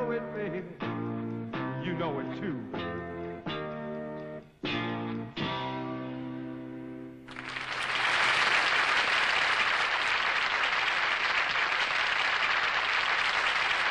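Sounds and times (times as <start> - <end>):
audience applause: 7.3 - 13.9.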